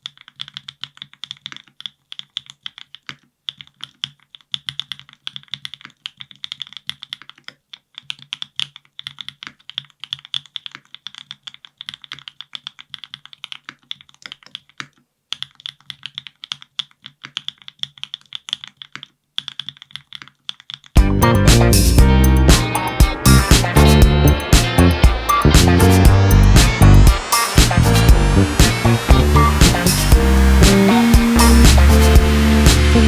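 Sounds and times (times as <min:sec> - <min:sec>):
mechanical keyboard typing: 0:00.0 - 0:21.0.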